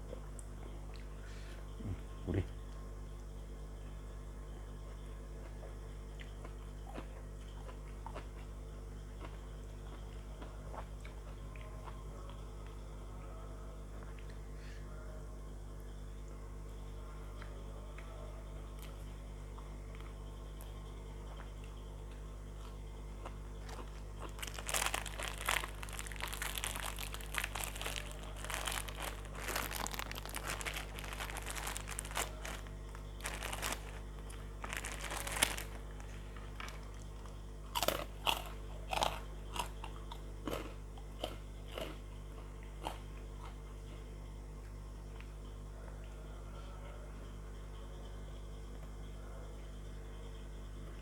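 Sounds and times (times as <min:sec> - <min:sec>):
steady low hum: 0:00.0 - 0:51.0
chewing crunchy fried food: 0:04.6 - 0:13.1, 0:16.3 - 0:46.1.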